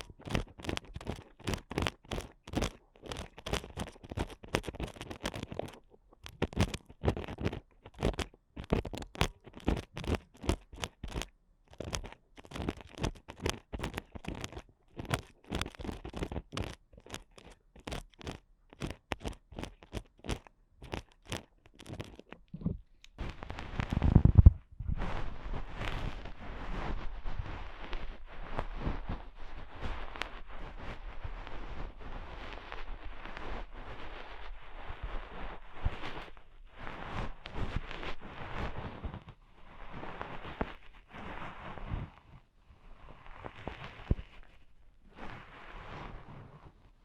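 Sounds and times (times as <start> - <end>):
ear picks scraping microphone: 0.0 - 47.0
low rubbing on microphone: 20.9 - 47.0.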